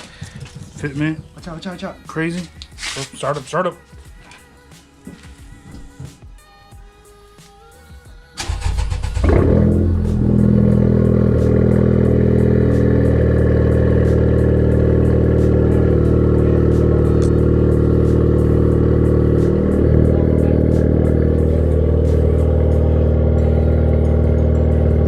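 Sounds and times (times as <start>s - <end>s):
car engine starting and idling: 8.4s - 25.0s.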